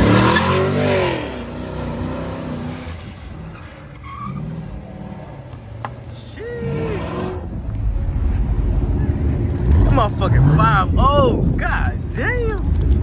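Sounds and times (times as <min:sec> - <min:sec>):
tyres squealing: 0:00.0 - 0:07.8
car engine revving: 0:00.0 - 0:13.0.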